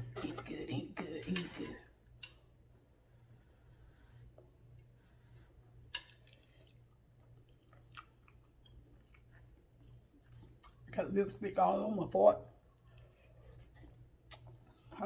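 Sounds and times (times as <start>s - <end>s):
low steady hum: 0.0s - 15.0s
person chewing food: 3.3s - 10.9s, 12.5s - 15.0s.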